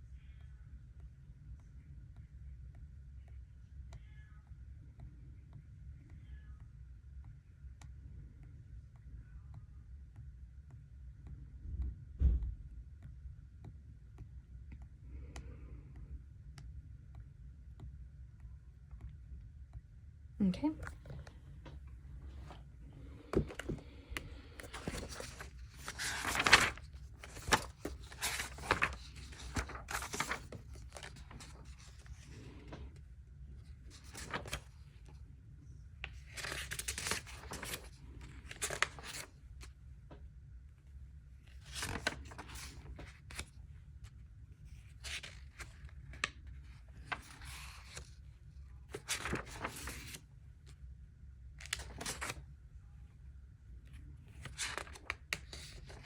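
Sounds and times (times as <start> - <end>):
paper rustling: 22.2 - 32.9, 33.6 - 34.8, 36.0 - 39.3, 41.5 - 43.6, 44.7 - 48.2, 48.9 - 50.2, 51.6 - 52.4, 54.3 - 56.0.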